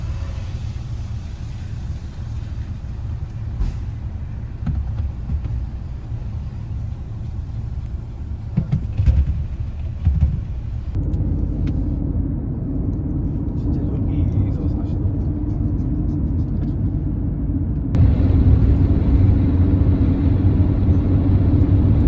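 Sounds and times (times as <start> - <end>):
car road rumble: 0.0 - 22.0
knocks and bumps: 4.6 - 6.0, 8.3 - 11.0.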